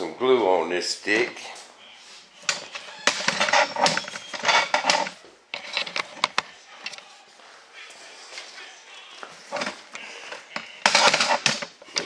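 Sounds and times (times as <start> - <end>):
tools scraping on workbench: 2.5 - 6.4, 10.8 - 11.6
tools clicking and knocking: 2.5 - 7.0, 10.5 - 12.0.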